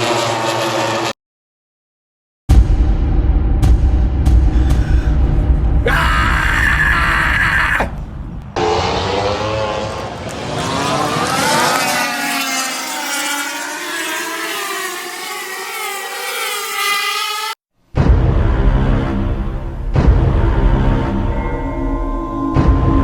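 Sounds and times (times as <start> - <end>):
racing motorcycles passing: 0.0 - 1.1, 7.6 - 17.6.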